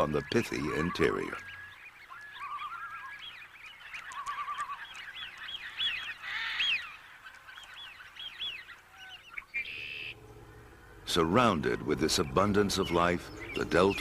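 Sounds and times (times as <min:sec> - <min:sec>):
waterfowl honking: 0:08.9 - 0:14.0.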